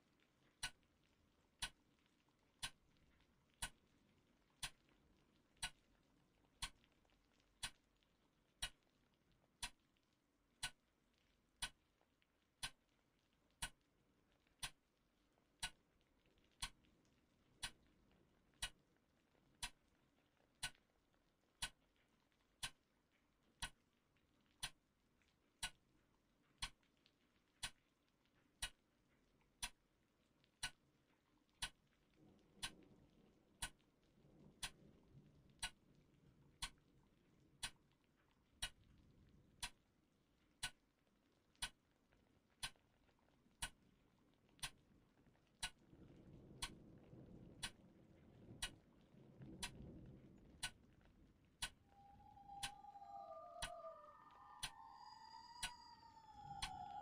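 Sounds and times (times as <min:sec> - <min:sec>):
faint low hum: 0:00.0 - 0:57.0
clock ticking: 0:00.4 - 0:03.9, 0:04.5 - 0:05.9, 0:06.5 - 0:08.0, 0:08.6 - 0:08.9, 0:09.6 - 0:09.9, 0:10.6 - 0:10.8, 0:11.6 - 0:12.0, 0:12.6 - 0:12.9, 0:13.5 - 0:14.9, 0:15.6 - 0:16.8, 0:17.5 - 0:17.9, 0:18.5 - 0:18.9, 0:19.5 - 0:19.9, 0:20.6 - 0:20.9, 0:21.6 - 0:21.9, 0:22.5 - 0:22.9, 0:23.5 - 0:23.9, 0:24.5 - 0:24.8, 0:25.6 - 0:25.8, 0:26.6 - 0:26.8, 0:27.6 - 0:27.8, 0:28.6 - 0:28.8, 0:29.6 - 0:29.8, 0:30.6 - 0:30.9, 0:31.6 - 0:31.9, 0:32.6 - 0:32.9, 0:33.6 - 0:33.9, 0:34.6 - 0:34.9, 0:35.5 - 0:35.9, 0:36.6 - 0:36.8, 0:37.6 - 0:38.0, 0:38.6 - 0:38.8, 0:39.6 - 0:39.8, 0:40.6 - 0:40.8, 0:41.6 - 0:41.8, 0:42.6 - 0:42.8, 0:43.6 - 0:43.8, 0:44.5 - 0:44.8, 0:45.6 - 0:48.0, 0:48.6 - 0:48.9, 0:49.5 - 0:51.0, 0:51.6 - 0:57.0
soft low rumble: 0:43.4 - 0:57.0.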